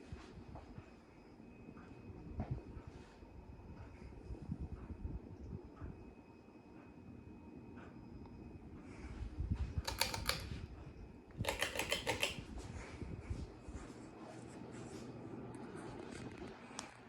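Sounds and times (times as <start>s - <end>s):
ceiling fan humming: 0.0s - 17.0s
sharp clicking: 9.9s - 10.5s, 11.4s - 12.4s.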